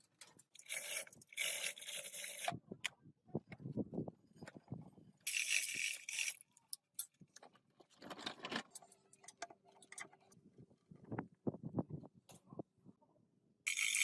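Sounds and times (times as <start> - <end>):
metal parts clinking and rattling: 5.3 - 6.4, 13.7 - 14.0.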